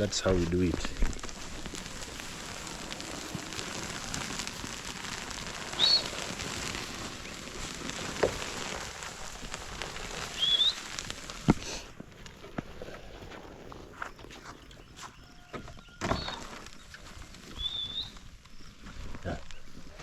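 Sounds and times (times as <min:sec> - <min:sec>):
rustling crackling hiss: 0:00.0 - 0:20.0
rising bird whistles: 0:05.6 - 0:06.6, 0:10.3 - 0:11.0, 0:14.6 - 0:16.9, 0:17.5 - 0:18.7.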